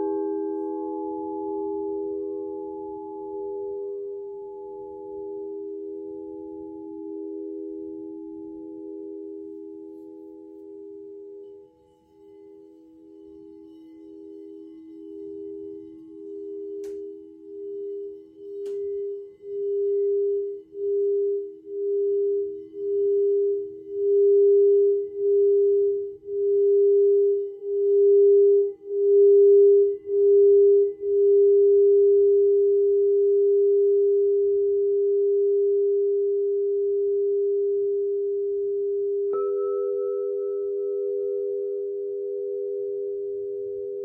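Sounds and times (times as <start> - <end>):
singing bowl sustained tone: 0.0 - 44.0
singing bowl struck: 39.3 - 43.0.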